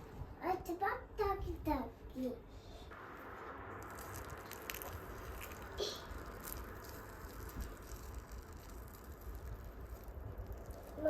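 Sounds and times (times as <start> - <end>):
food cooking in a pan: 3.0 - 11.0.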